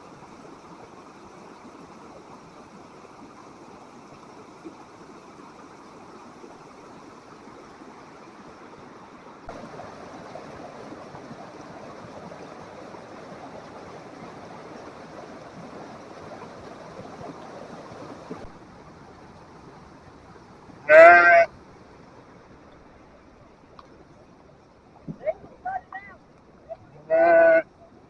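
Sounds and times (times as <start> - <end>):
floodwater rushing in creek: 0.0 - 28.0.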